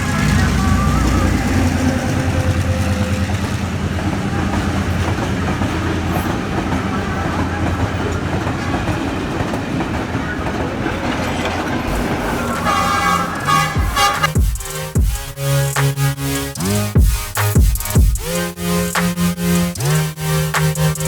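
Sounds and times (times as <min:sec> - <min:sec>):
train rumble and wheel clatter: 0:00.0 - 0:14.4.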